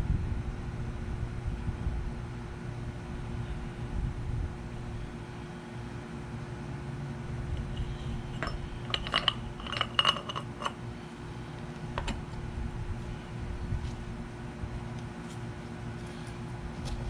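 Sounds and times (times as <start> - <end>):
small metal parts clinking: 7.6 - 10.8.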